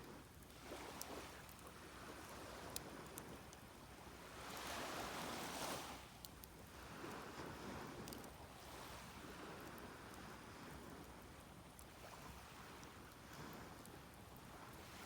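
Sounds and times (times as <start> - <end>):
waves washing onto sandy beach: 0.0 - 15.0
faint sharp clicks: 8.0 - 8.3.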